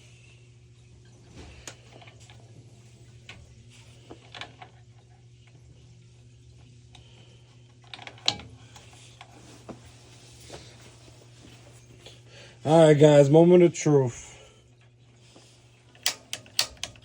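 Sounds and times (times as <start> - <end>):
steady low hum: 0.0 - 17.0
metal parts and tools clicking: 16.0 - 17.0.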